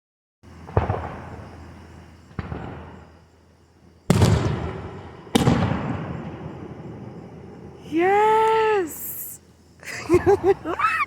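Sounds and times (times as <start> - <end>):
fireworks booming: 0.5 - 3.4, 4.1 - 9.0
rumbling echo: 4.1 - 7.8.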